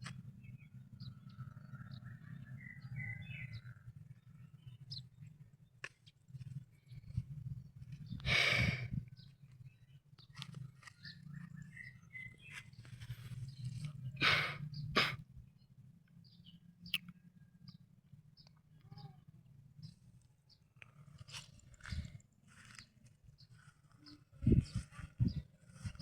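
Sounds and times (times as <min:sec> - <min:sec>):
faint bird chirps: 0:00.4 - 0:05.4, 0:08.0 - 0:15.1, 0:18.4 - 0:20.0.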